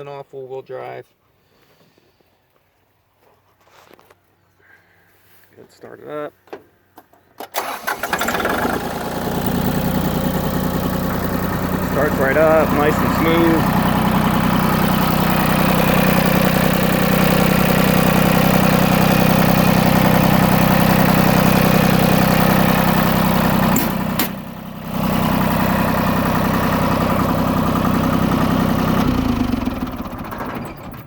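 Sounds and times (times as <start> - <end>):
engine shutting off: 7.5 - 31.0
diesel tractor engine idling: 7.6 - 31.0.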